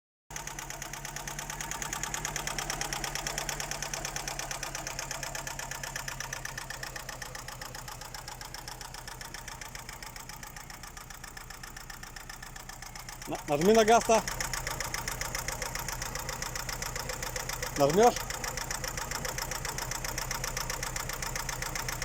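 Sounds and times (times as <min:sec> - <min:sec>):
car engine idling: 0:00.3 - 0:22.0
engine knocking: 0:00.3 - 0:22.0.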